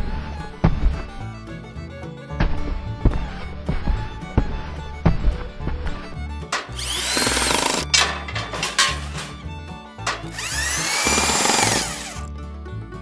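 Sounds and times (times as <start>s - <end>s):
power tool whining: 6.5s - 9.4s, 10.1s - 12.3s.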